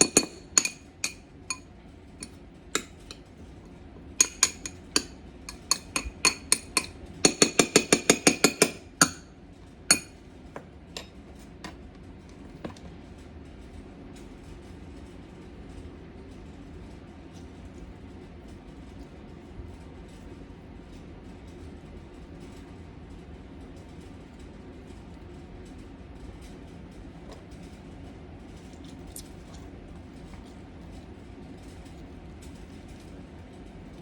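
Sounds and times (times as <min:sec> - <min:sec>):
utensil clinking against glass bowl: 0:00.0 - 0:03.3, 0:04.1 - 0:10.2.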